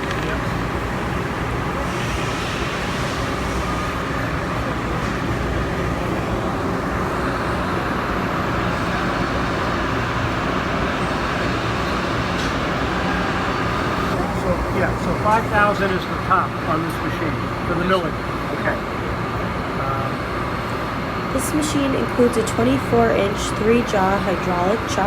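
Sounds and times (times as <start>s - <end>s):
machine spindle running: 0.0s - 25.0s.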